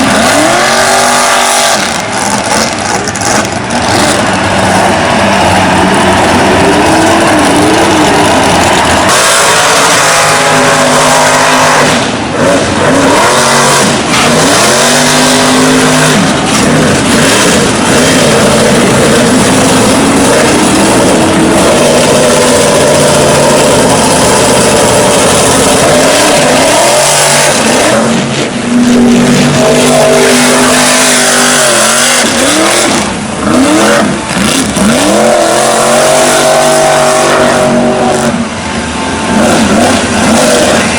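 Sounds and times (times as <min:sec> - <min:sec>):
steady rushing noise: 0:00.0 - 0:40.9
truck engine revving hard: 0:00.0 - 0:40.9.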